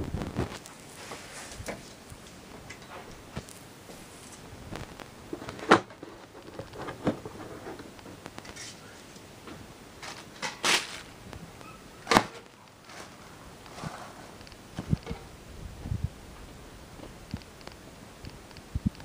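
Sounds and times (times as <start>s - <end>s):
packaging rustling: 3.4s - 8.8s, 10.0s - 15.1s.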